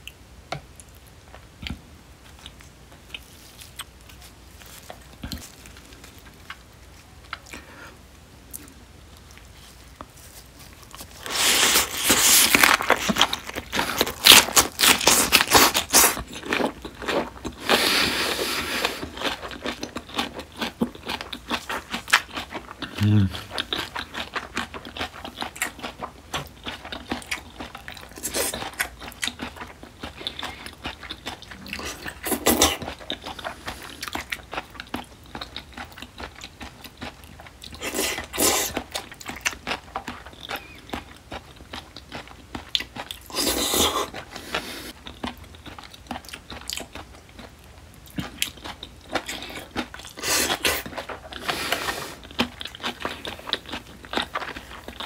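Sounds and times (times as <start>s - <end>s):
wet chewing and mouth smacks: 18.8s - 55.0s.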